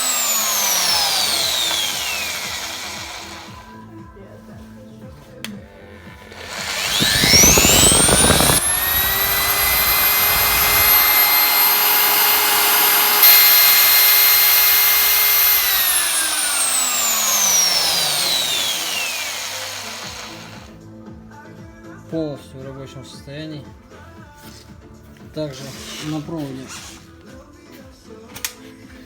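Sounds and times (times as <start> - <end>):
drill motor whining: 0.0 - 3.8, 5.8 - 20.8.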